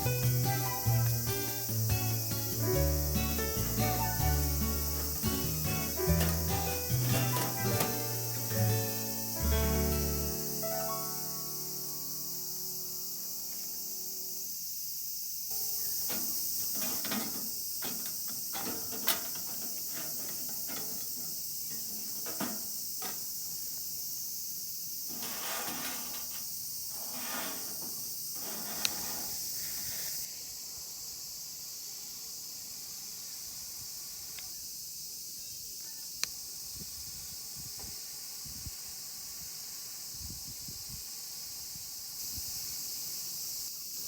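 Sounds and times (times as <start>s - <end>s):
wood fire crackling: 0.0s - 10.1s
insect chorus: 0.0s - 44.0s.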